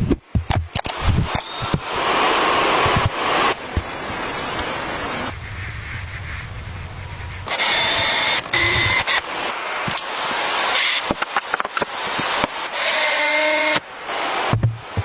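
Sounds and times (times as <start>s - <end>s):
power tool whining in bursts: 7.5s - 9.2s.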